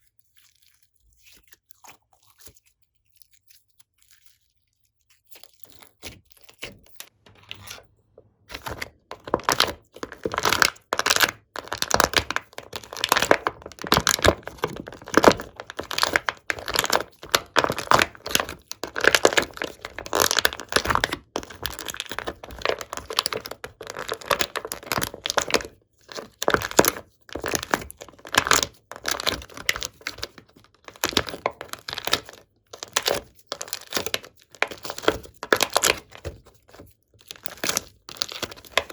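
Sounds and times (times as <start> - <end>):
slime crackling and popping: 8.5 - 38.9.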